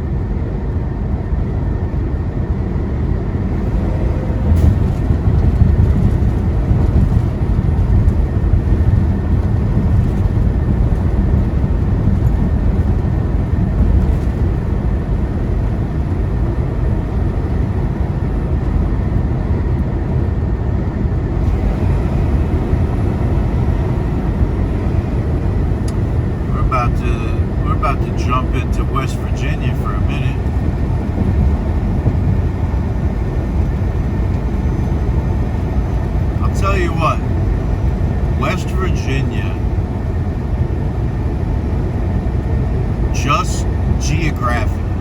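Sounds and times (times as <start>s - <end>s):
truck engine drone: 0.0s - 45.0s
tyre and road noise: 1.2s - 28.2s.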